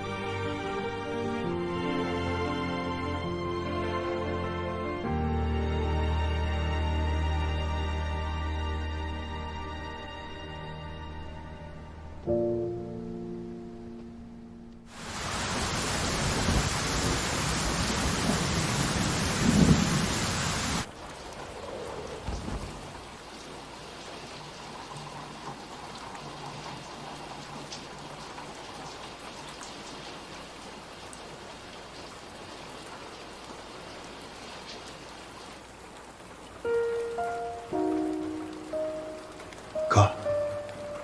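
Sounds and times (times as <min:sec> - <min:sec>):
heavy rain: 0:00.0 - 0:12.2, 0:14.9 - 0:41.0
faint steady hiss: 0:11.2 - 0:41.0
low rumble of thunder: 0:15.5 - 0:23.4.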